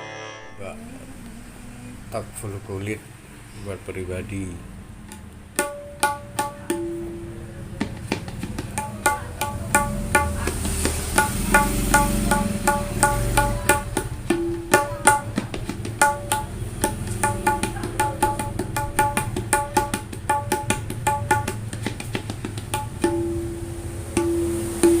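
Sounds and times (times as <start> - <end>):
hand drum strokes: 5.1 - 25.0.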